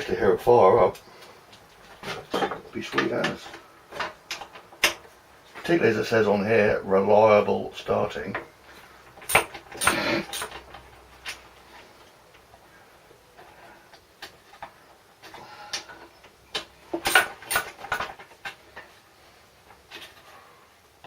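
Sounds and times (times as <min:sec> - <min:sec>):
hand tools clicking and rattling: 0:08.2 - 0:12.6, 0:13.4 - 0:19.0.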